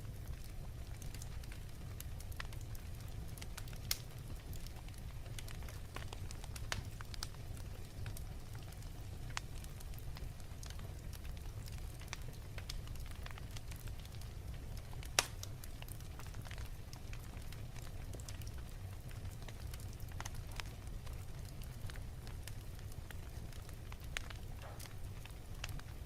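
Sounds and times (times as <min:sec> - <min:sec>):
fire rumbling: 0:00.0 - 0:26.0
wood fire crackling: 0:00.0 - 0:26.0.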